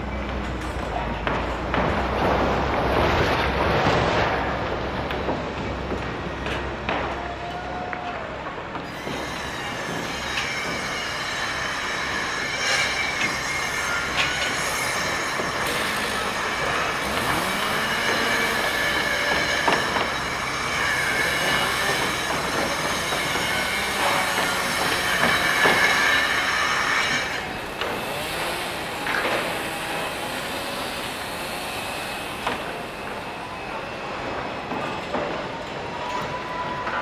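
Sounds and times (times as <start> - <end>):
construction machinery din: 0.0 - 37.0
high whining tones: 9.0 - 36.9.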